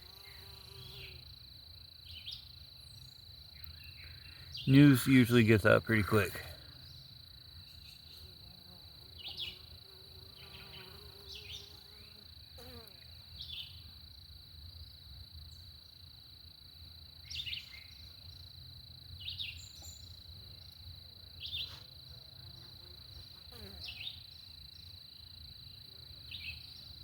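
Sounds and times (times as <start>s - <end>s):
honeybee buzzing: 0.0s - 1.2s
high-pitched insect trill: 0.0s - 5.9s, 6.7s - 27.0s.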